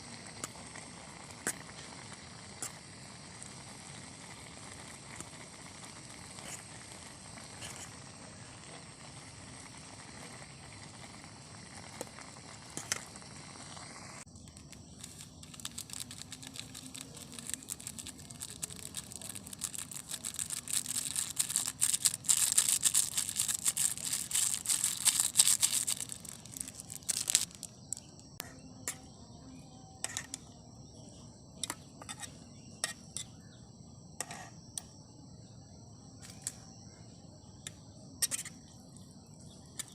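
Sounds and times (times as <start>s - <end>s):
crickets chirring: 0.0s - 39.9s
rustling and crinkling handling noise: 14.4s - 28.2s.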